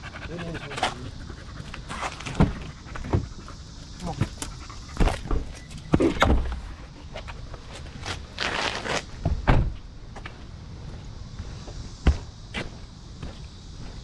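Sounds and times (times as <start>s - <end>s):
thuds and knocks: 9.2s - 9.8s.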